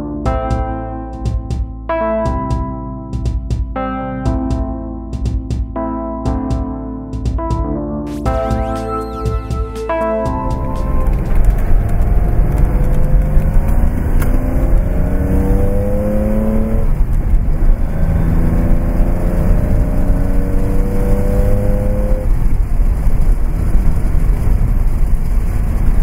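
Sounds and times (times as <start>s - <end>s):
steady low rumble: 9.5s - 26.0s
gear upshifts: 9.8s - 22.4s
car engine accelerating: 10.0s - 26.0s.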